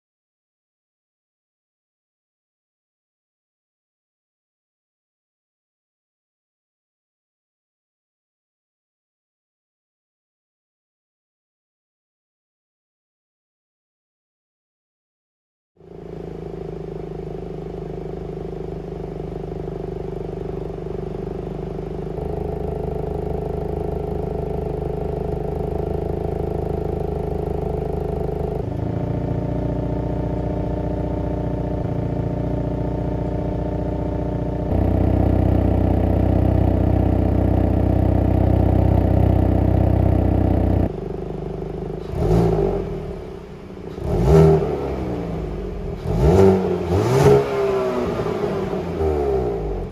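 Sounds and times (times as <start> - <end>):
car exhaust idling: 15.8 - 49.9
engine revving: 22.2 - 41.0, 41.9 - 49.9.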